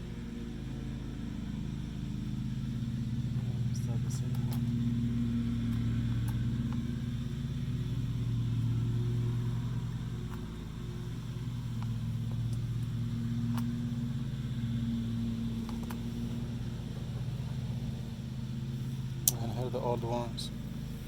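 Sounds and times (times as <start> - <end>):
engine idling: 0.0 - 21.0
light clicks: 3.2 - 19.7.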